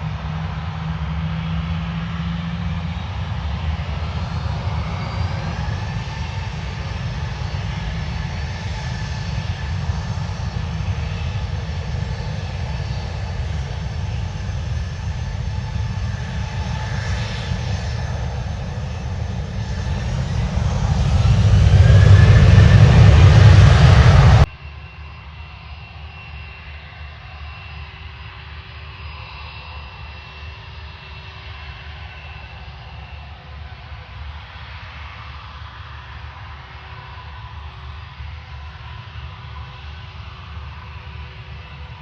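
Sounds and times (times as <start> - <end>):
jet engines rumbling and whining: 0.0 - 42.0.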